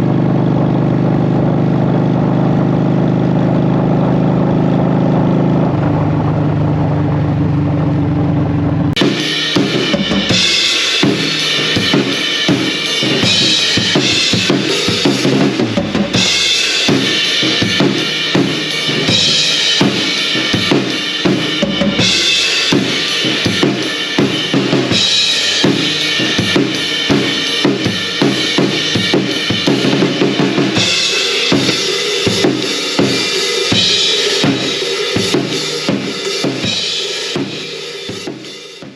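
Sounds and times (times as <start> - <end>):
motorcycle idling: 0.0 - 38.6
drum kit playing a groove: 8.9 - 38.9.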